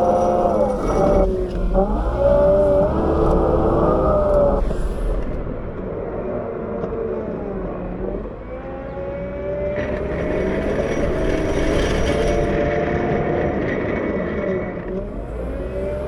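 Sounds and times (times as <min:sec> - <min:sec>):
wheel loader diesel engine: 0:00.0 - 0:16.0.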